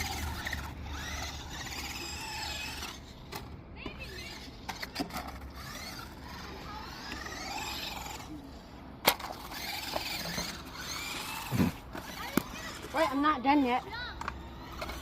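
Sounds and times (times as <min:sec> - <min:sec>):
electric motor whining: 0:00.0 - 0:03.2, 0:04.0 - 0:08.4.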